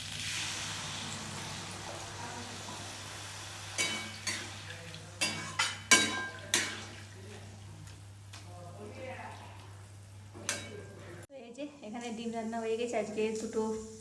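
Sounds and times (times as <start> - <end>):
food sizzling in a pot: 0.0 - 8.2, 9.0 - 14.0
metal spoon clinking on pot: 3.8 - 4.6, 5.2 - 7.0, 10.4 - 11.0.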